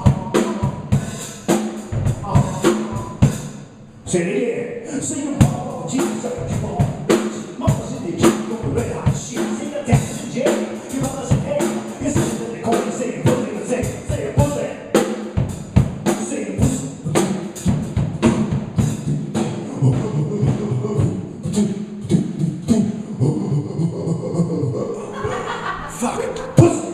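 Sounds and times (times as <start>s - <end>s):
hip hop beat: 0.0s - 3.3s, 5.3s - 22.9s.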